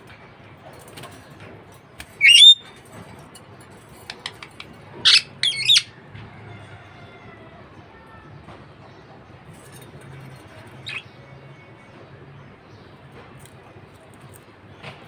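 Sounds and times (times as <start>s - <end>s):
budgerigar chirping squawk: 2.2s - 2.6s, 4.3s - 5.9s, 10.8s - 11.0s.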